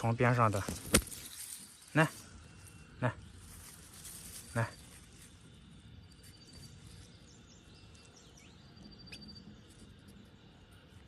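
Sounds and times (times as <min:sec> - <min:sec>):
faint high chirps: 0:04.4 - 0:11.0.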